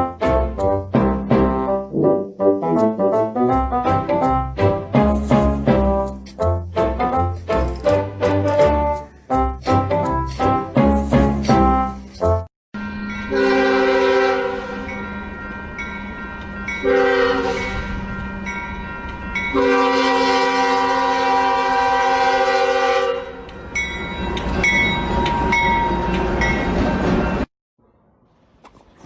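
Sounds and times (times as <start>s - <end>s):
music: 0.0s - 12.5s
running train rumble: 0.0s - 27.5s
train horn blasts: 12.8s - 15.0s, 16.8s - 17.9s, 19.5s - 23.5s.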